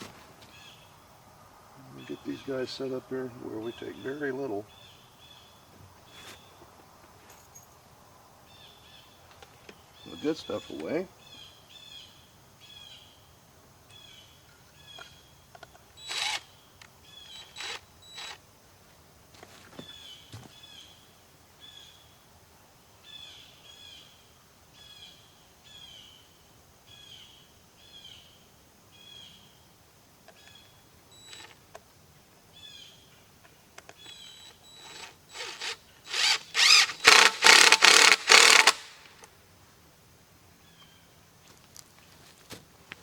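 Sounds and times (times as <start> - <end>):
bird chirping: 13.9 - 18.4, 33.9 - 39.0.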